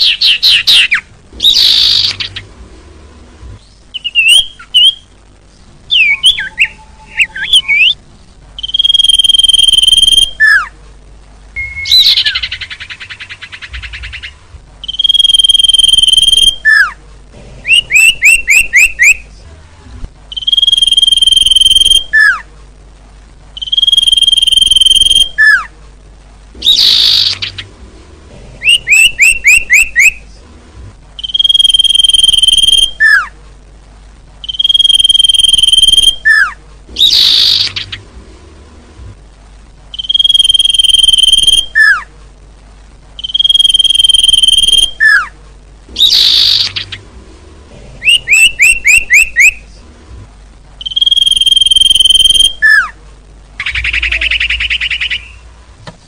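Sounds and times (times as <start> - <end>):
harsh rasping bird calls: 0.0 - 2.5, 8.6 - 10.7, 11.6 - 17.0, 17.6 - 19.3, 26.6 - 27.8, 28.6 - 30.2, 34.4 - 38.1, 46.0 - 47.1, 48.0 - 49.6, 53.6 - 55.5
high bird whistle: 8.6 - 10.7, 14.8 - 16.9, 20.3 - 22.4, 23.6 - 25.6, 31.2 - 33.3, 34.4 - 37.9, 39.9 - 42.1, 43.2 - 45.3, 48.0 - 49.6, 50.8 - 52.9.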